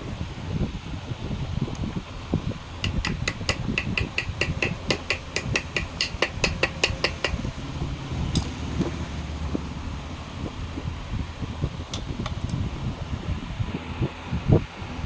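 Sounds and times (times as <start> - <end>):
steady low hum: 0.0 - 15.0
sharp metallic taps: 2.8 - 7.6.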